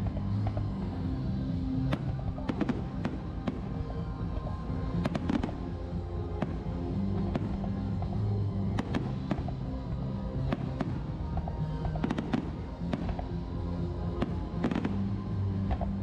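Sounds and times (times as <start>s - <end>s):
music with low bass: 0.0s - 16.0s
fireworks banging: 1.9s - 3.9s, 4.9s - 5.7s, 8.7s - 9.6s, 14.2s - 15.1s.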